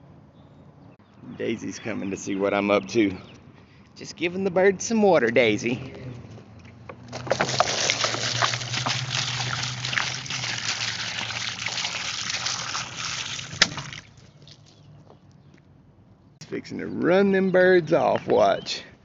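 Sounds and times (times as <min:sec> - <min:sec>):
water pouring into a dish: 0:07.4 - 0:14.6.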